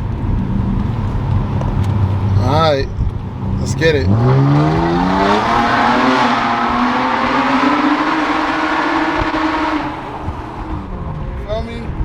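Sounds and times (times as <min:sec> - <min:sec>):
car exhaust accelerating: 0:00.0 - 0:12.0.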